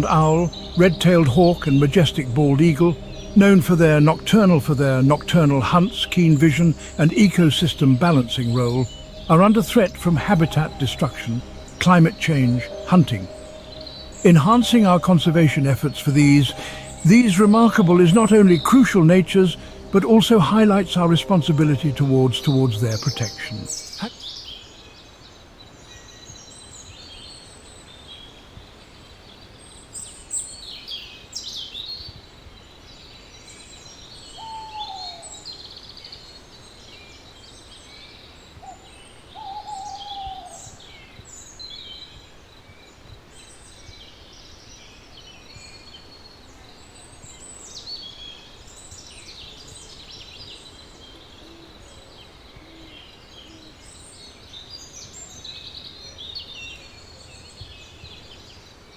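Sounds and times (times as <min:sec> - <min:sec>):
low falling hoot-like bird calls: 0:00.0 - 0:24.2, 0:34.4 - 0:35.5, 0:38.6 - 0:40.9
small birds chirping and trilling: 0:00.0 - 0:58.9.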